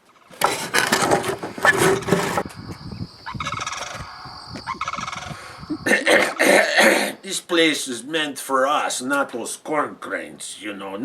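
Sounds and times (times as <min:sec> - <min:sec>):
cranes calling: 0:00.0 - 0:07.0.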